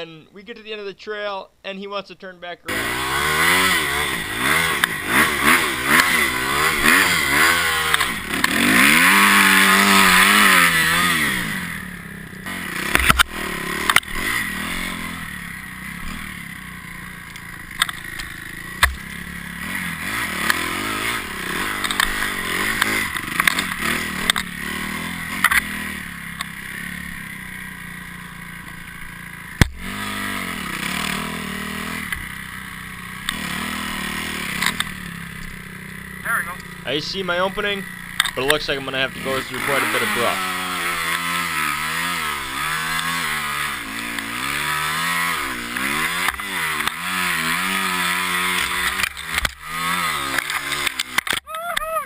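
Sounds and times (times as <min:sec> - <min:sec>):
dirt bike engine revving: 0:02.7 - 0:52.0
sharp knocks and clatter: 0:17.4 - 0:19.1.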